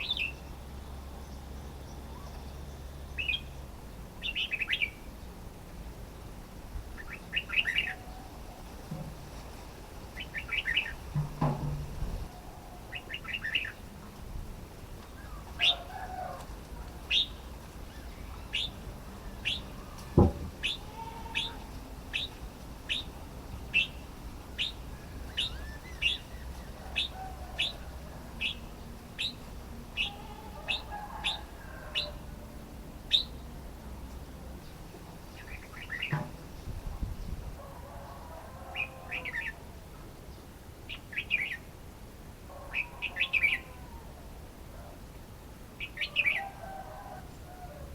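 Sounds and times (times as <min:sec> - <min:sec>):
bird calling: 0:07.0 - 0:08.7, 0:10.2 - 0:11.1, 0:12.3 - 0:13.8, 0:15.2 - 0:16.4, 0:17.0 - 0:32.4, 0:35.3 - 0:36.4, 0:42.5 - 0:44.2
thump: 0:11.1 - 0:12.1, 0:20.2 - 0:20.6.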